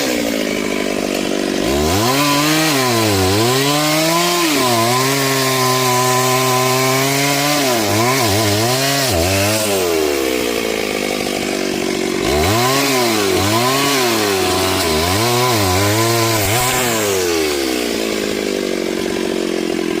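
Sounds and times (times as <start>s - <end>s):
chainsaw cutting into tree: 0.0s - 20.0s.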